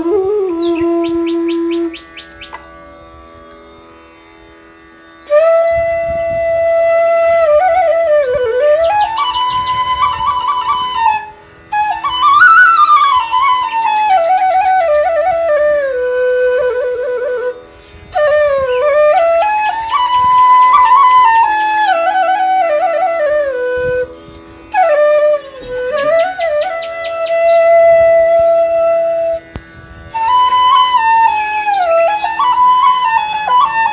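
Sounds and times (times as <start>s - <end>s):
solo flute melody: 0.0s - 2.5s, 5.2s - 33.9s.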